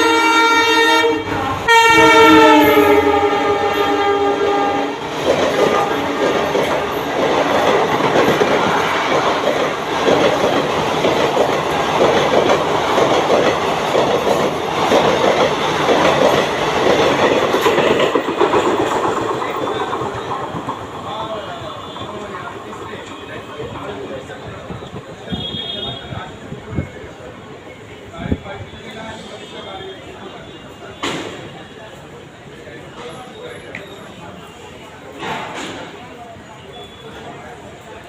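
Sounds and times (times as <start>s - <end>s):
train horn: 0.0s - 6.5s, 25.3s - 26.2s
rush of passing train: 0.0s - 38.0s.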